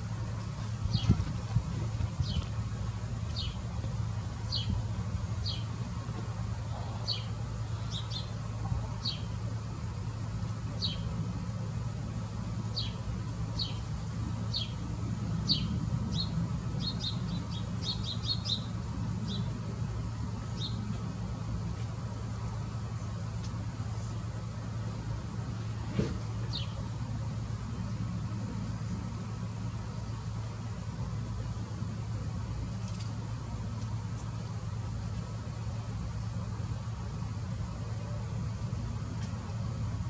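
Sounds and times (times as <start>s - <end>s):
steady low rumble: 0.0s - 40.0s
small bird chirping: 15.4s - 18.7s.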